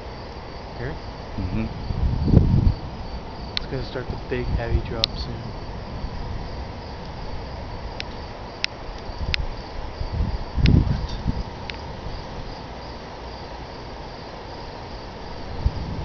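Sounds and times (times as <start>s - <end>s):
crickets chirping: 0.0s - 16.0s
low rumble: 0.7s - 12.6s
light sharp ticks: 8.0s - 9.5s, 10.6s - 11.8s.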